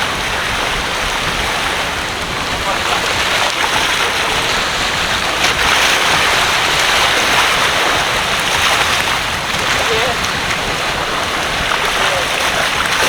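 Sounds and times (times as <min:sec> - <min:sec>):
rain falling: 0:00.0 - 0:13.0
waves washing at shore: 0:00.0 - 0:13.0.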